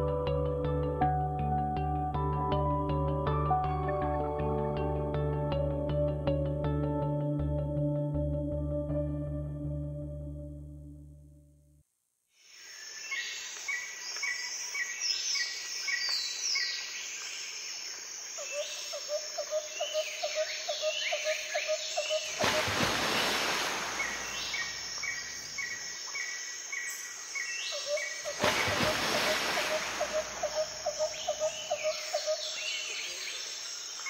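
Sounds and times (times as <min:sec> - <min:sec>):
steady insect-like hiss: 0:12.3 - 0:34.0
birds chirping and calling: 0:24.0 - 0:33.5.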